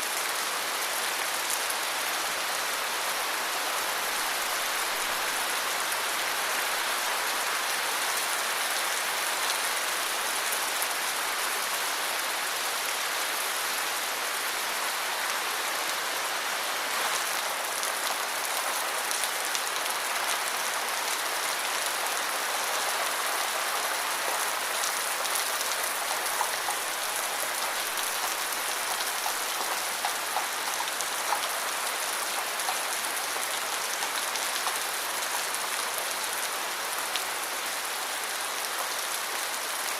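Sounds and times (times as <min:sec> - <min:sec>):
individual raindrops: 0:23.9 - 0:36.0.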